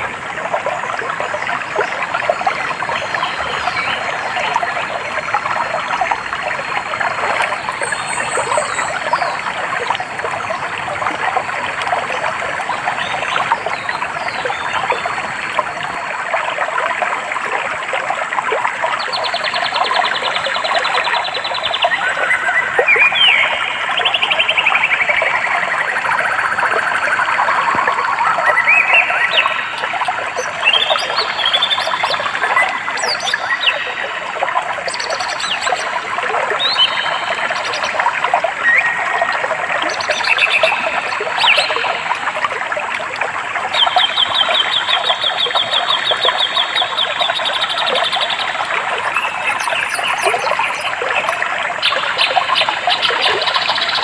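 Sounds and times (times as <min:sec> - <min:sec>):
stream babbling over stones: 0:00.0 - 0:54.0
birds singing: 0:07.4 - 0:09.5, 0:19.0 - 0:25.7, 0:28.2 - 0:34.1, 0:34.9 - 0:38.0, 0:38.6 - 0:42.0, 0:43.8 - 0:54.0.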